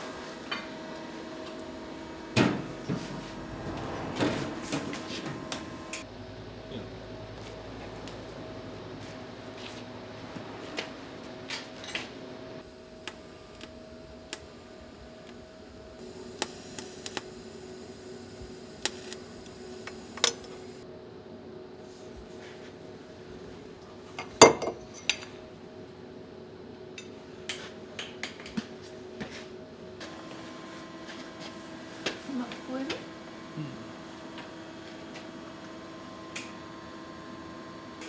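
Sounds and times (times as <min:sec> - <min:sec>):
faint steady hum: 0:12.6 - 0:20.8.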